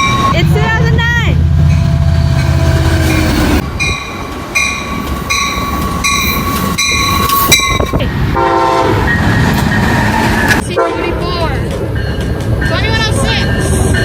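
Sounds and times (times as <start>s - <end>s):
train rumbling past: 0.0s - 14.0s
bell ringing in steady beat: 3.8s - 7.9s
locomotive horn chord: 8.4s - 9.0s.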